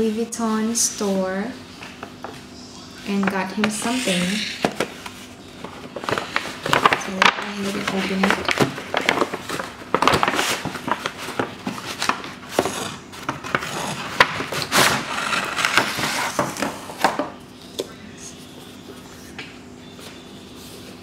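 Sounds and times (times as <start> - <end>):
paper rustling: 3.1 - 17.3.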